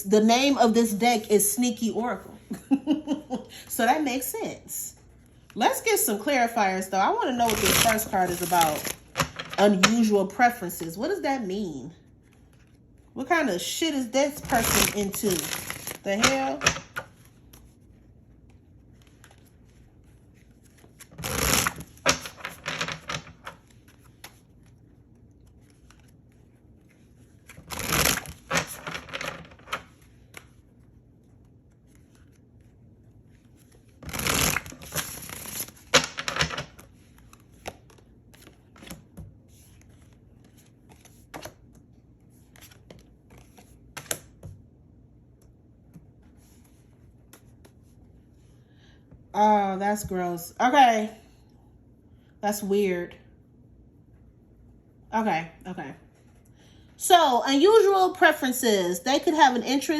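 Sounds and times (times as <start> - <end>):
cards being shuffled: 7.4 - 10.0, 14.3 - 44.6, 45.3 - 48.0.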